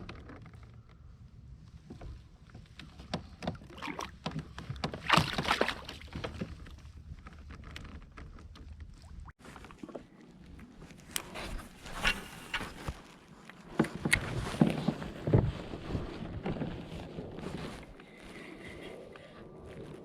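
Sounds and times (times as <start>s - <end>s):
water splashing: 3.6s - 4.2s, 5.0s - 6.7s.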